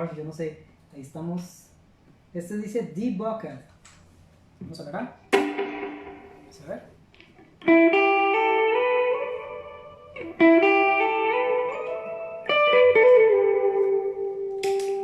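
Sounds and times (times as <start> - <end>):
electric guitar with delay: 5.4 - 6.8, 7.6 - 15.0.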